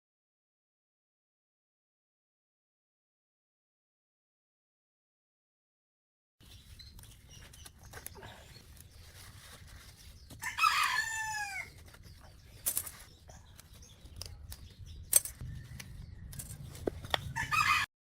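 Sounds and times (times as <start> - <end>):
rooster crowing: 10.4 - 11.7, 17.4 - 17.9.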